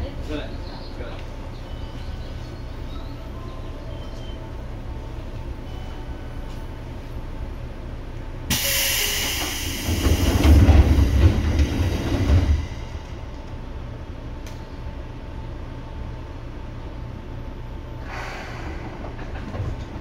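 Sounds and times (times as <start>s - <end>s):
train running noise: 0.0s - 20.0s
loud hiss: 8.5s - 10.1s
heavy low rumble: 16.8s - 20.0s.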